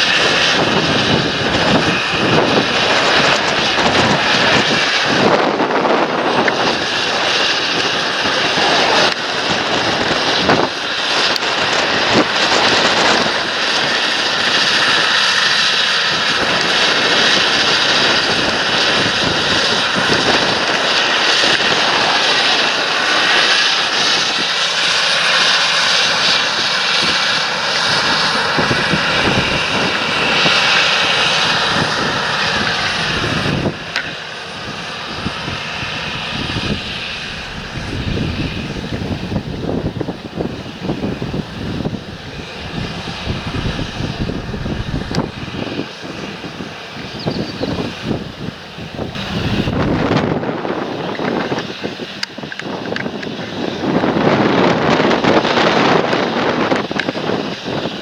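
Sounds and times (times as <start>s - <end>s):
tractor diesel engine running: 0.0s - 46.0s
high whine: 0.0s - 51.4s.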